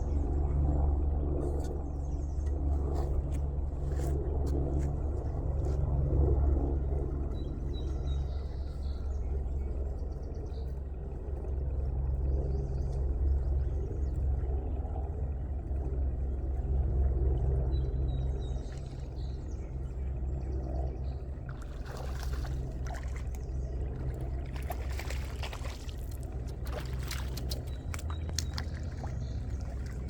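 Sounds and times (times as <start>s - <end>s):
steady low rumble: 0.0s - 30.0s
water splashing around boat: 18.4s - 30.0s.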